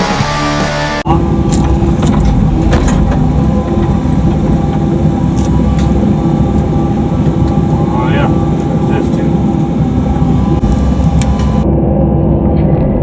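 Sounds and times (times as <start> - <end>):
rock music: 0.0 - 6.2
excavator diesel engine running: 0.0 - 12.0.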